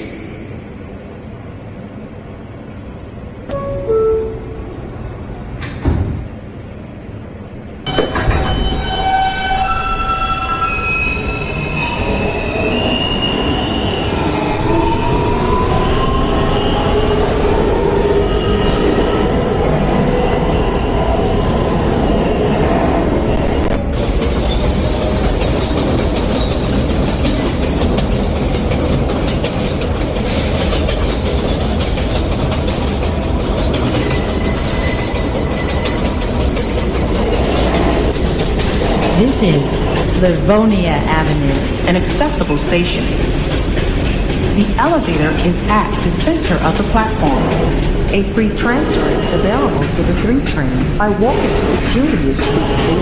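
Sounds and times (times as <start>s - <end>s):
subway wheels rumbling on rail: 0.0s - 53.0s.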